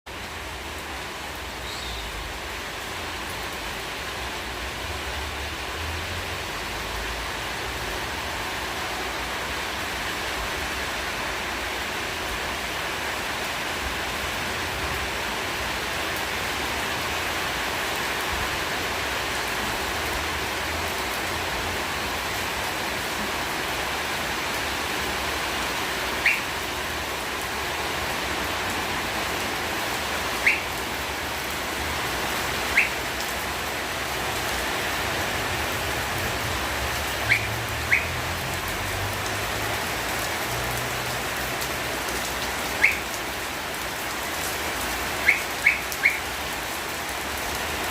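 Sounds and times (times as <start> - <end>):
steady rain falling: 0.1 - 47.9
high chirps: 26.2 - 26.5, 30.4 - 30.8, 32.7 - 33.0, 37.2 - 38.2, 45.2 - 46.3.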